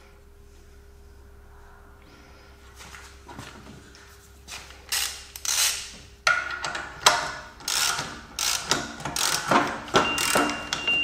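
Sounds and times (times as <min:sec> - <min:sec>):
ratchet wrench clicking: 0:04.9 - 0:05.9, 0:07.6 - 0:09.5.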